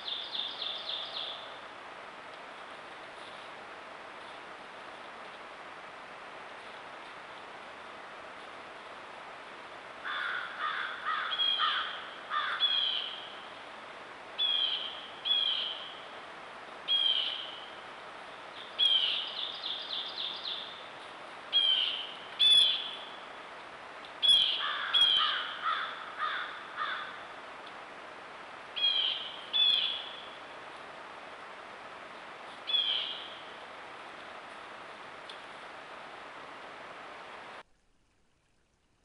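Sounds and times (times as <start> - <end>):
birds calling: 10.1 - 13.3, 21.5 - 23.2, 24.2 - 27.2, 28.8 - 30.4, 32.6 - 33.5.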